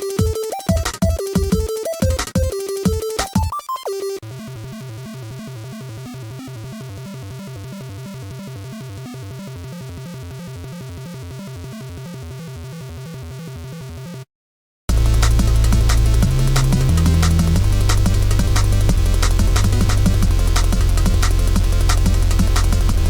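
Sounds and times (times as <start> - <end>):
electronic music with pulsing bass: 0.0 - 7.7, 14.9 - 23.0.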